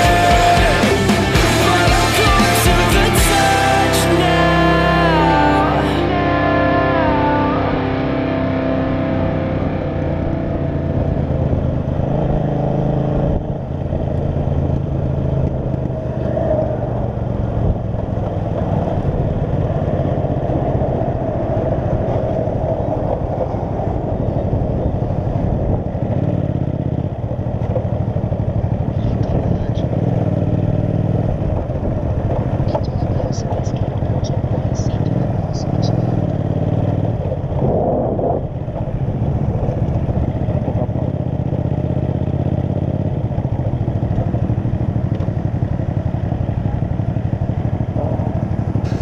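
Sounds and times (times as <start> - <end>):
music track: 0.0 - 12.7
motorcycle engine running: 0.0 - 49.0
road and air noise: 0.0 - 49.0.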